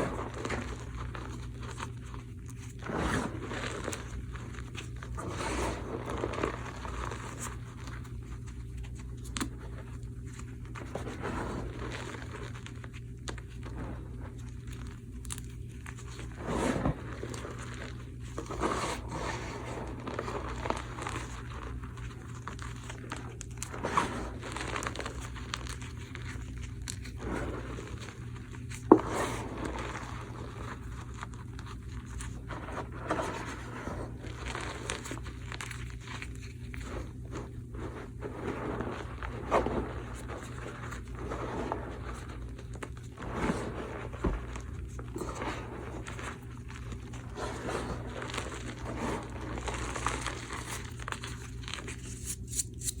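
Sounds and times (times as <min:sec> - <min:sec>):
chalk crunching and crinkling: 0:00.0 - 0:53.0.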